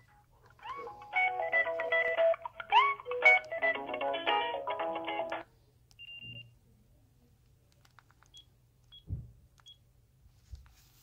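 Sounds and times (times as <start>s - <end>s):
phone ringtone melody: 0.0s - 5.4s.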